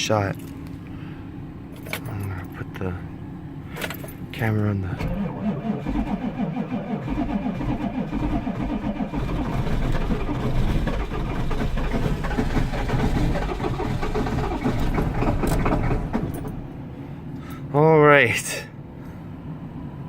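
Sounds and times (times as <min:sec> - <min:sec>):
diesel engine cranking over: 0:03.7 - 0:16.8.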